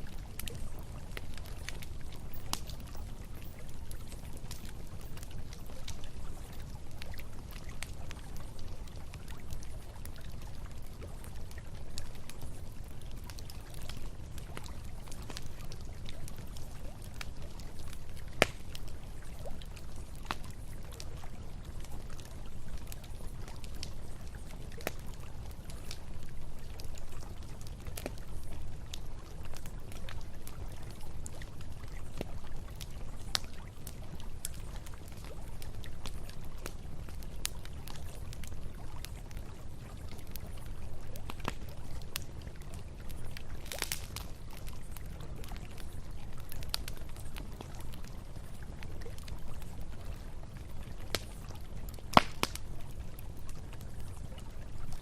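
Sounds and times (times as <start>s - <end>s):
campfire crackling and popping: 0.0s - 55.0s.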